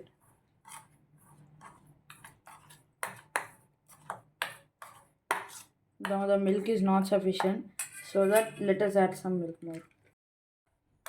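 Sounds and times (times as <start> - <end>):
spoon scraping thick mixture: 0.0 - 6.8, 7.7 - 8.6.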